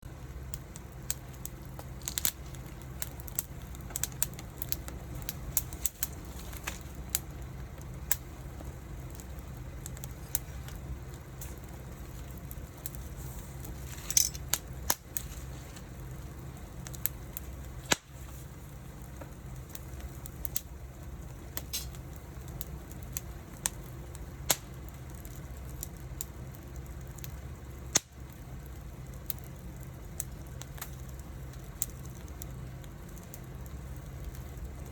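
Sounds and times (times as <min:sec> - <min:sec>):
wood fire crackling and popping: 0:00.0 - 0:34.9
fire hiss: 0:00.1 - 0:34.9.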